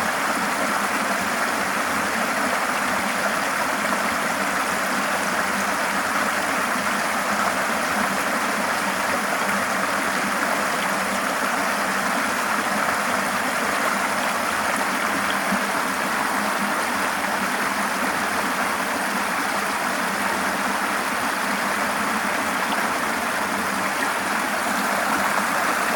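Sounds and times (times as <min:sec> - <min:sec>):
river water flowing over rocks: 0:00.0 - 0:25.9.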